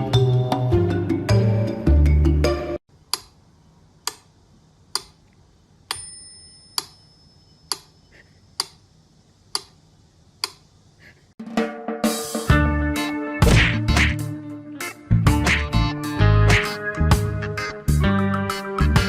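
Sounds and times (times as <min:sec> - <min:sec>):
bell-like ring: 0:06.0 - 0:08.0
sharp ticks: 0:09.5 - 0:09.8, 0:10.4 - 0:10.6.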